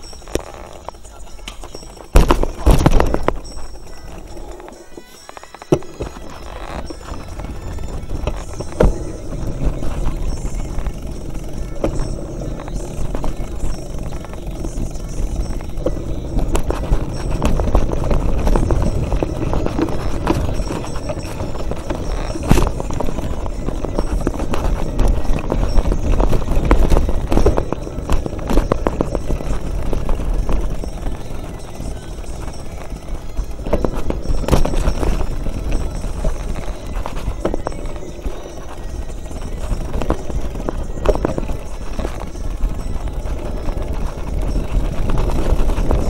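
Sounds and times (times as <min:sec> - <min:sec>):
mountain bike rattling on trail: 0:00.0 - 0:46.0.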